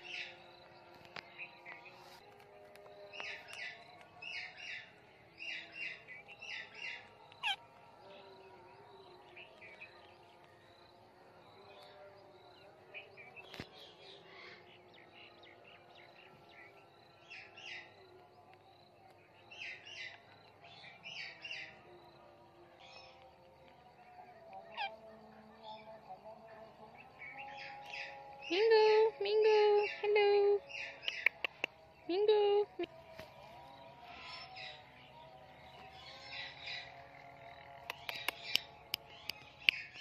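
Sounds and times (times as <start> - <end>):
birds chirping: 0.0 - 40.0.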